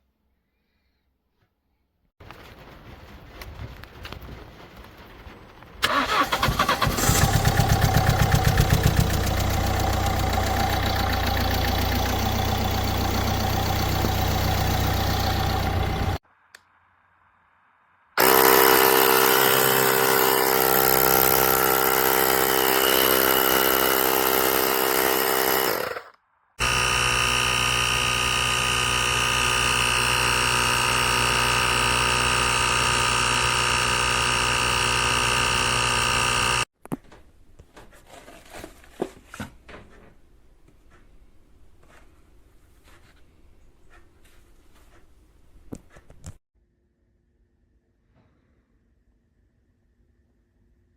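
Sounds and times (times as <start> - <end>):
diesel engine cranking and running: 5.8 - 16.2, 18.2 - 36.7
steady machine sound: 18.2 - 36.7.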